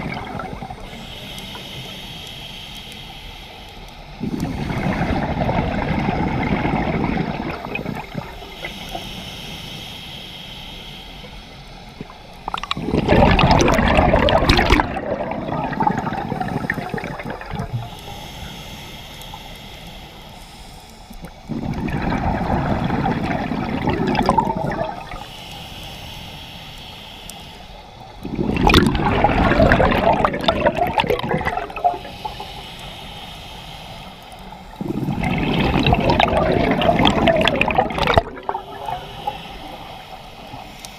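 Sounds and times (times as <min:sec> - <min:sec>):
exhaled bubbles gushing underwater: 0:00.0 - 0:01.1, 0:04.2 - 0:09.0, 0:12.0 - 0:18.1, 0:21.2 - 0:25.3, 0:28.2 - 0:32.4, 0:34.8 - 0:40.6
regulator inhalation hiss: 0:00.3 - 0:13.9, 0:14.5 - 0:40.9.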